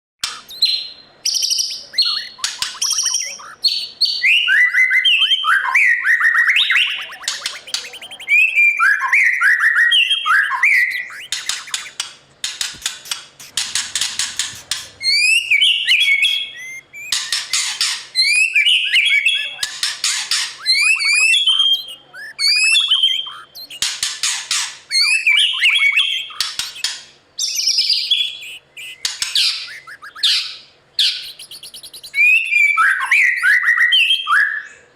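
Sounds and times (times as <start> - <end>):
bird singing varied song: 0.2 - 34.9.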